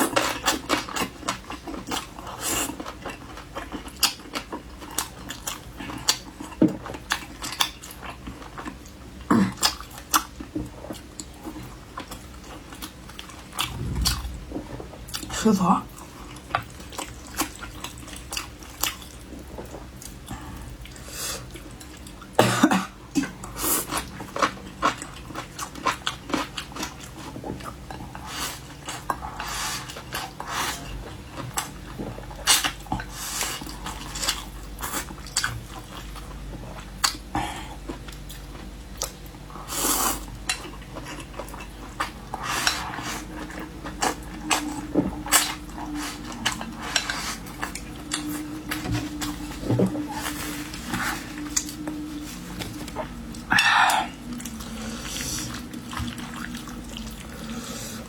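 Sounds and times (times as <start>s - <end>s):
wet chewing: 40.0s - 58.0s.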